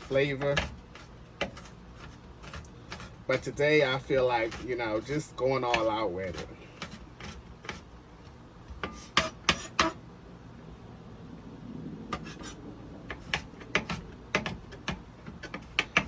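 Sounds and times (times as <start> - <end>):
knife chopping on cutting board: 8.8 - 10.0, 12.2 - 16.0.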